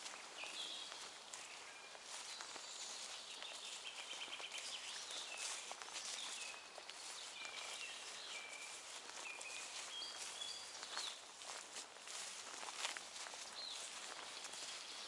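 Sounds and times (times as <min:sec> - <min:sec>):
steady outdoor hiss: 0:00.0 - 0:07.4
forest birds singing: 0:00.0 - 0:15.0.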